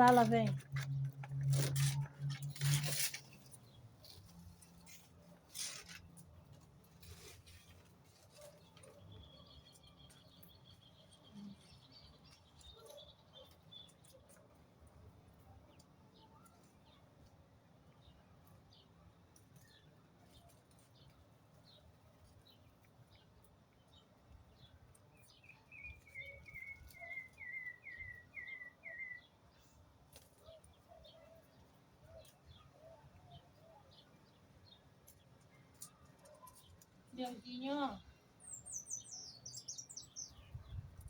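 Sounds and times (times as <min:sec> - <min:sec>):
bird chirps: 0:25.2 - 0:29.3, 0:35.7 - 0:40.8.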